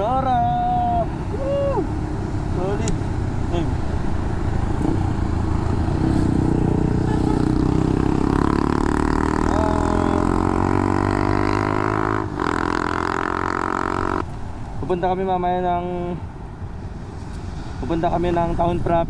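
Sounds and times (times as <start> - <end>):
motorcycle engine running: 1.8 - 14.6.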